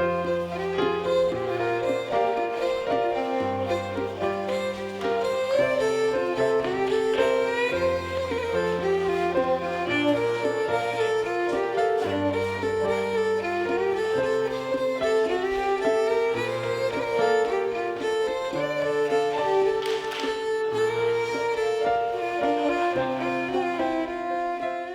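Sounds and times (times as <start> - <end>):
fiddle playing a jig: 0.0 - 24.9.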